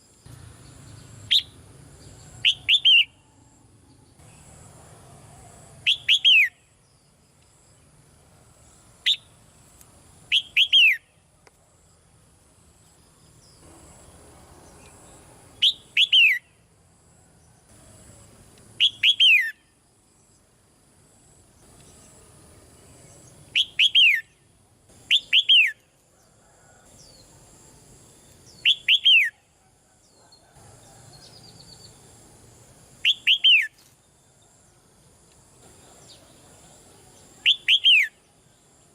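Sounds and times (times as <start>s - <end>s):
bird calling whistled notes: 2.4s - 3.2s, 5.8s - 6.6s, 10.3s - 11.1s, 15.6s - 16.5s, 18.8s - 19.7s, 23.5s - 24.4s, 25.0s - 25.8s, 28.6s - 29.4s, 33.0s - 33.8s, 37.4s - 38.2s.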